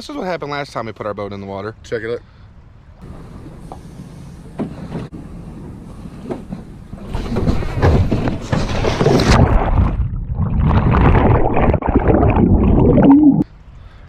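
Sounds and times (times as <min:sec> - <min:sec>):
rough water: 0:02.6 - 0:14.0
knocks and splashes: 0:06.4 - 0:13.4.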